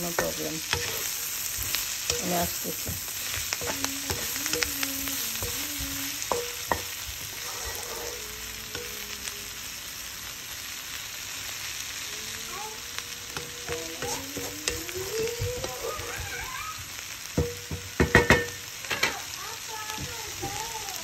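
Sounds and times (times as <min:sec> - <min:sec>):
oil sizzling in a pan: 0:00.0 - 0:21.0.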